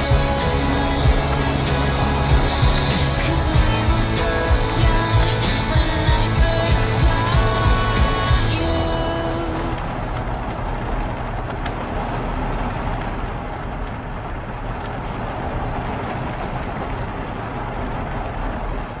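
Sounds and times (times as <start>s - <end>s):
rain hiss: 0.0s - 10.8s
low rumble: 0.0s - 12.4s.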